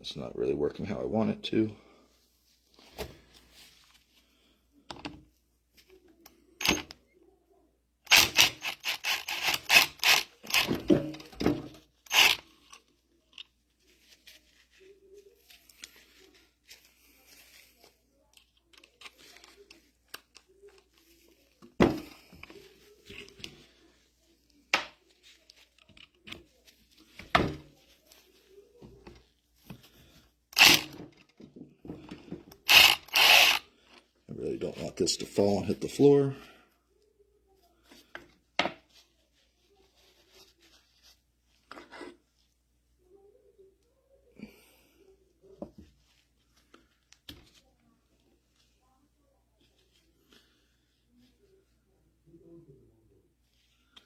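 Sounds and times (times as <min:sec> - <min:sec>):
metal tools knocking and clattering: 0:10.5 - 0:12.4.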